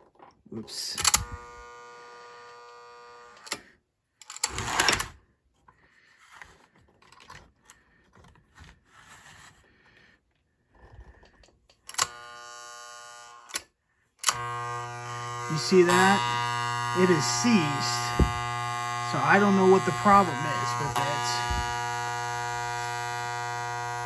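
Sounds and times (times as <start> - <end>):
electrical motor buzz: 1.1 - 3.5, 11.9 - 13.6, 14.2 - 24.0.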